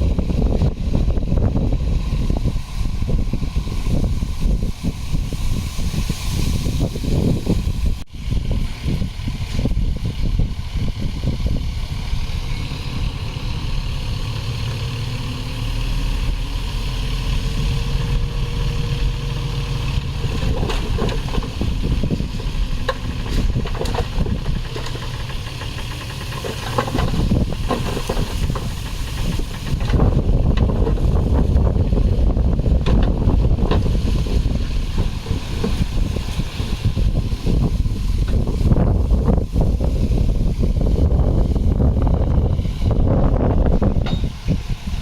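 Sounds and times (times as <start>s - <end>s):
heavy machinery diesel engine running: 0.0s - 45.0s
metal clanks and knocks: 44.0s - 44.4s.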